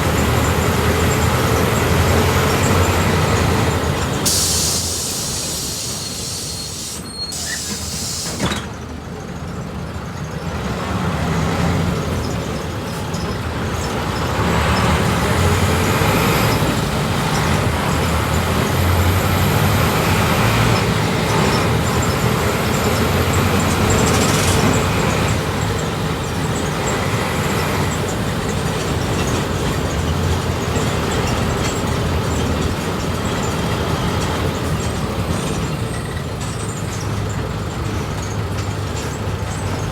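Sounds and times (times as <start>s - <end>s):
bus engine accelerating: 0.0s - 39.9s
air hiss: 4.2s - 8.5s.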